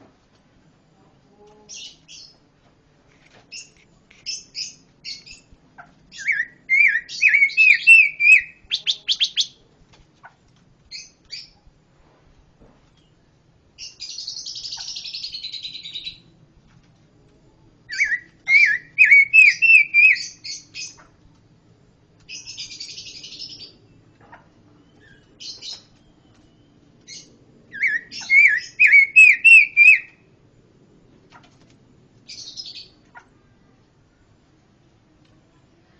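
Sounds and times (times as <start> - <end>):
songbird singing: 1.3 - 2.5, 3.5 - 9.8, 12.9 - 16.4, 17.3 - 21.2, 22.2 - 30.4, 32.2 - 33.7.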